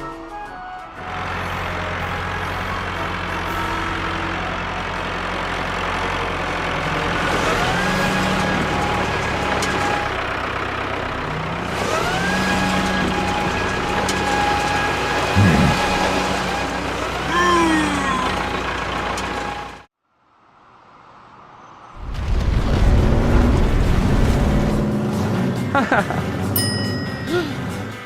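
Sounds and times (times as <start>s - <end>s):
vehicle engine revving: 1.0s - 19.9s.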